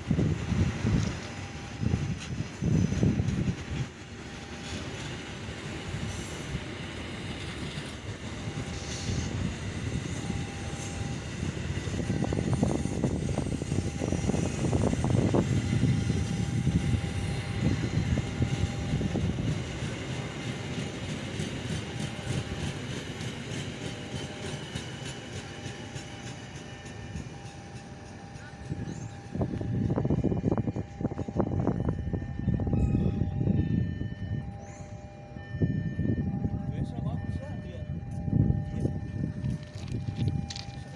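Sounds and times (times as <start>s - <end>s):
train wheels clattering on rails: 0.0s - 31.4s.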